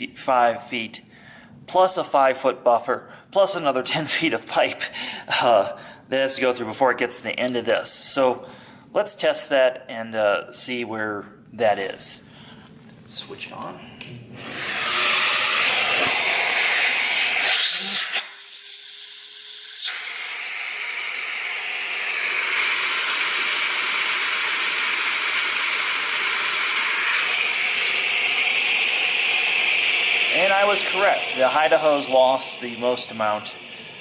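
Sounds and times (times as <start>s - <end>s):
vacuum rushing hiss: 13.7s - 34.0s.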